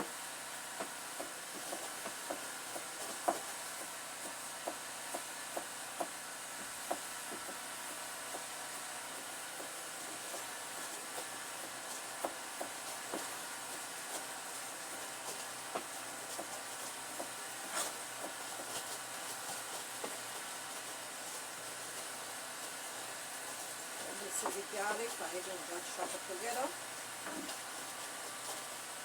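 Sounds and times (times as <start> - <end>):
chicken sizzling in a pot: 0.0 - 29.0.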